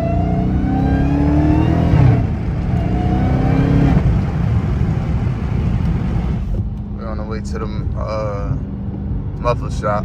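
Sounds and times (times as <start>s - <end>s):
car engine accelerating hard: 0.0s - 6.6s.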